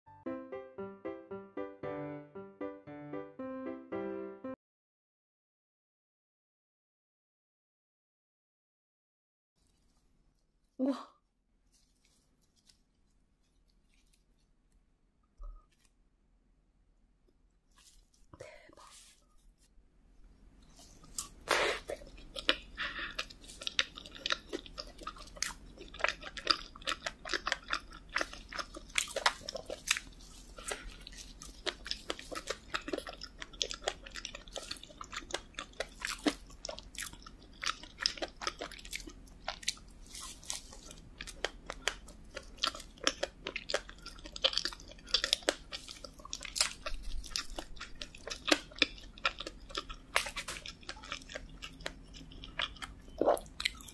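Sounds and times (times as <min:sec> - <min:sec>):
eating donut with mouth clicks: 0:21.2 - 0:53.9.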